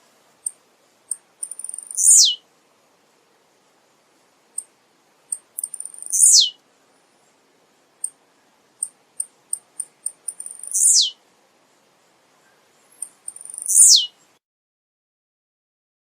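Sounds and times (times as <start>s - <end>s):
bird singing chips and buzzy note: 0.4s - 2.4s, 5.4s - 6.6s, 8.8s - 11.2s, 12.5s - 14.4s.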